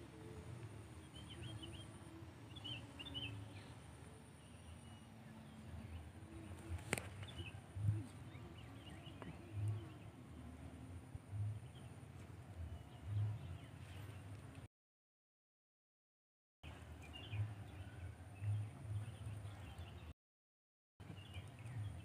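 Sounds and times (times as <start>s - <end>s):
small birds chirping: 21.0s - 22.0s.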